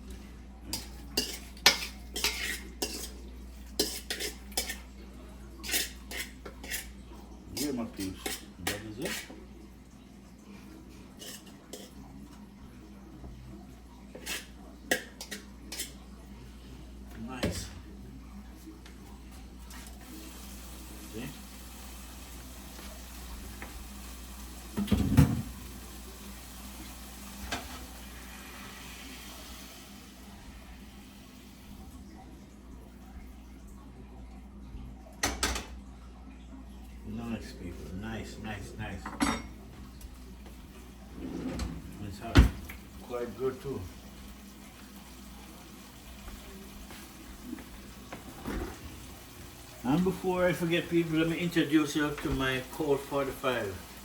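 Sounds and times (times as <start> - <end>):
metal fork scraping a cooking pot: 0.7 - 3.2, 3.8 - 4.8, 5.6 - 7.0, 11.2 - 11.9
kitchen knocking and clattering: 24.8 - 25.6, 35.2 - 35.8, 41.1 - 42.8.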